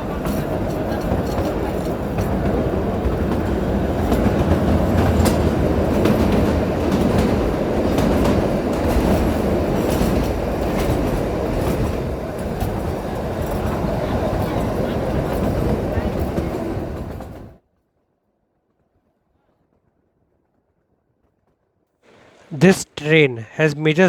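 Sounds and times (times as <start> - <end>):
train wheels clacking over rail joints: 0.0 - 17.5
train rumbling: 0.0 - 17.6.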